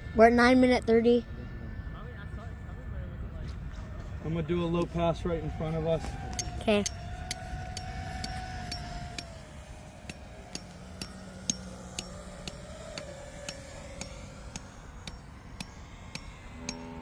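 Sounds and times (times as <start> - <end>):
model airplane motor droning: 0.0 - 17.0
sharp regular ticks: 6.0 - 17.0.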